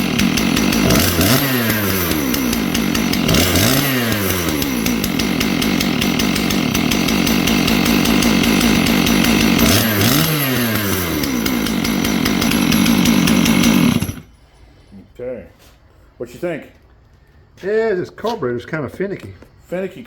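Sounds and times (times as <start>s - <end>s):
chainsaw engine revving high: 0.0s - 14.3s.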